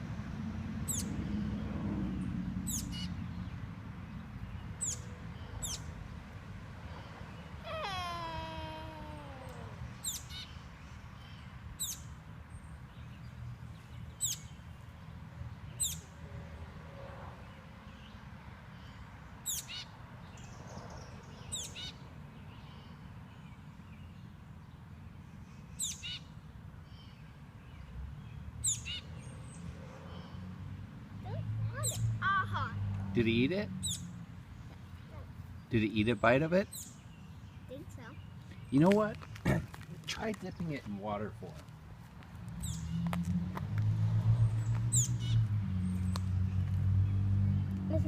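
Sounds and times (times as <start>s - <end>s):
baby bird chirping: 0.9s - 1.1s, 2.7s - 3.1s, 4.8s - 5.9s, 7.6s - 10.6s, 31.2s - 32.8s.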